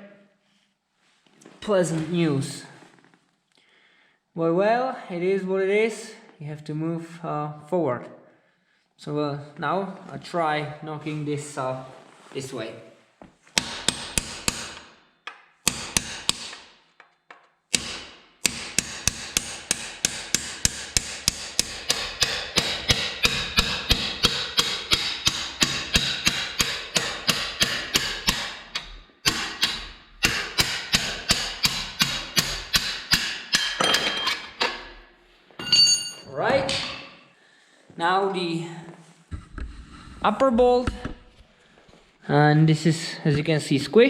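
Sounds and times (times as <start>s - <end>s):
hammer striking metal: 13.6s - 16.7s, 17.7s - 35.0s, 35.6s - 37.2s.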